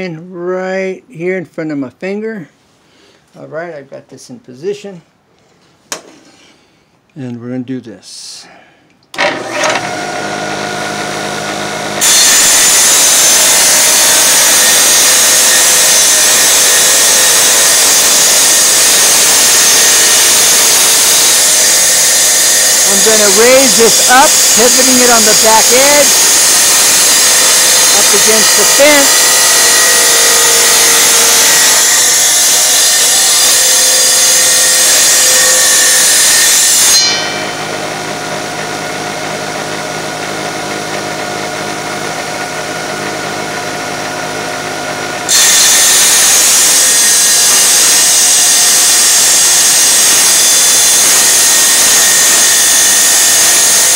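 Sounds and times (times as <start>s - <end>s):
tile saw motor humming: 9.1s - 53.9s
saw blade grinding through tile: 9.2s - 38.7s, 45.2s - 53.9s.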